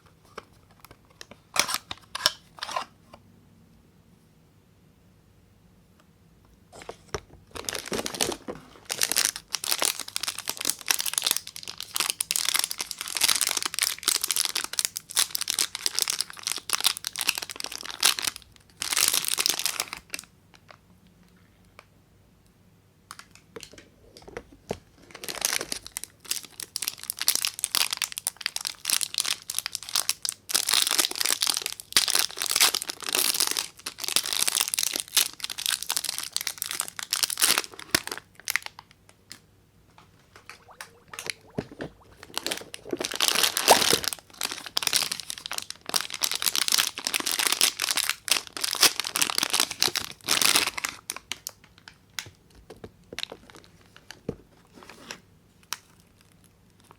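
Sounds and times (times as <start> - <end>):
wrapper crinkling: 7.5 - 20.8, 25.0 - 39.0, 40.4 - 52.0, 53.2 - 54.3.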